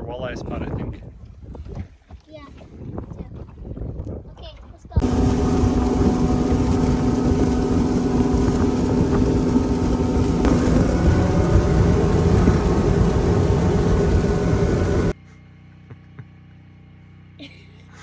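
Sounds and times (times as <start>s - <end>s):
outboard motor running: 5.0s - 15.2s.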